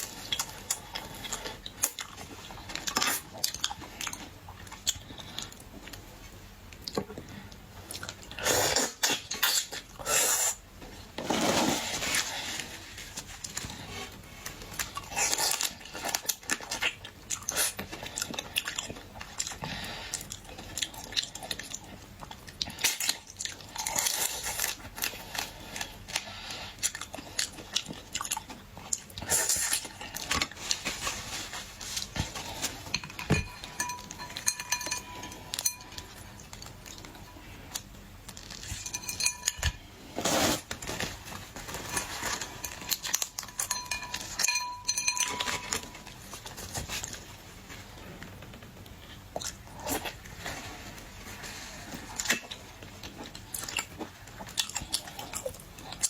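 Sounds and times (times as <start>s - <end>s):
chewing shellfish with crunches: 0.0s - 6.0s, 13.4s - 44.5s, 51.3s - 56.0s.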